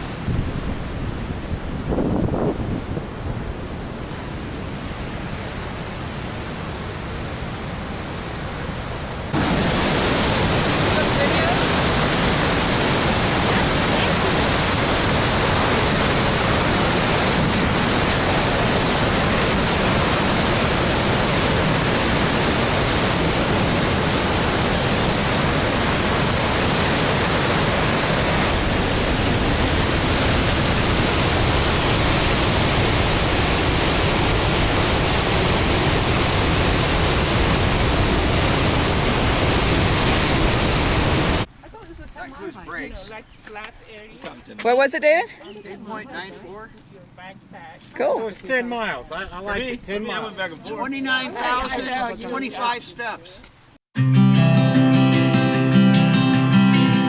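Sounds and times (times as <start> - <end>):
white water rushing over rapids: 3.6 - 41.5.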